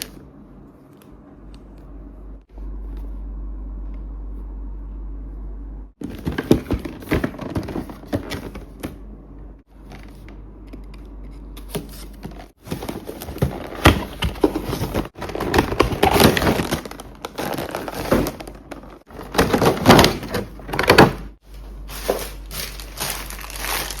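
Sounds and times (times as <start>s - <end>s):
steady low hum: 0.0s - 24.0s
packaging handling clicks and rustles: 6.0s - 9.0s, 11.6s - 24.0s.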